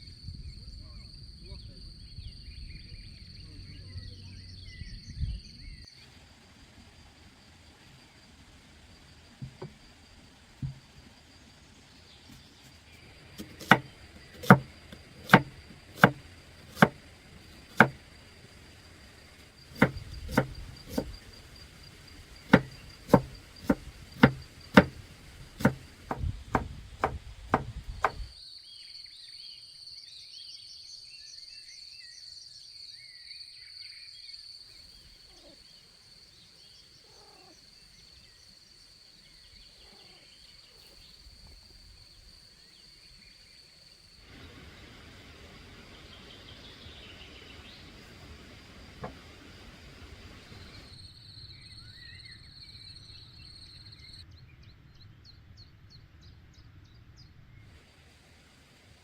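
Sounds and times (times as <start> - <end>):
high insect buzz: 5.4 - 28.4, 34.7 - 52.4
sharp chopping knocks: 9.4 - 9.8, 10.6 - 11.0, 13.4 - 17.0, 17.6 - 18.0, 19.7 - 21.2, 22.5 - 28.3, 49.0 - 49.3.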